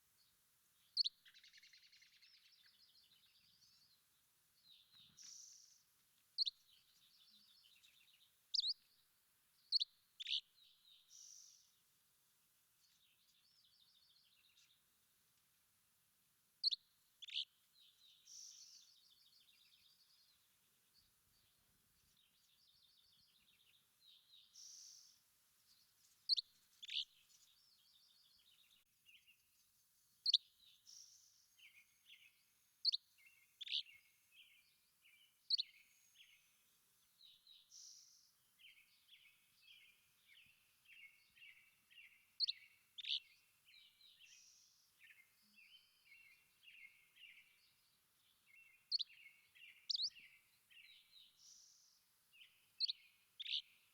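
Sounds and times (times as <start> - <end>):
soft bird trills and twittering: 0.0 - 11.9, 12.8 - 14.9, 16.6 - 53.9
songbirds chirping: 0.0 - 53.9.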